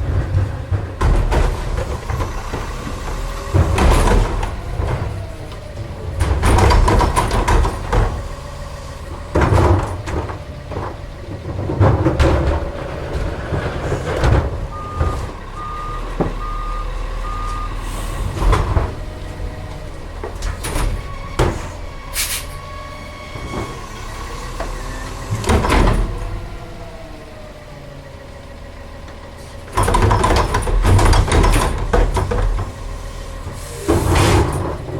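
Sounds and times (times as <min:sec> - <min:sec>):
loud bangs and clanks: 0:00.0 - 0:16.9, 0:18.2 - 0:22.0, 0:29.7 - 0:34.9
garbage truck engine and hydraulics: 0:00.0 - 0:34.9
reverse alarm beeping: 0:14.7 - 0:18.1.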